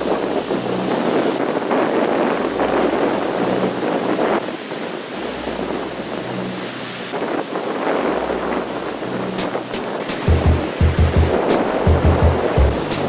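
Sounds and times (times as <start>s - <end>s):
wind noise on microphone: 0.0s - 13.0s
low bass note: 10.3s - 13.0s.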